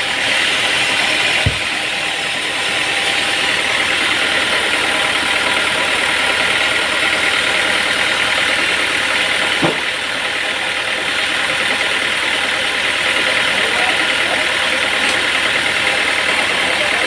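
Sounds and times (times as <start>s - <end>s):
sawmill machine running: 0.0s - 17.0s
sharp knock: 1.4s - 1.8s.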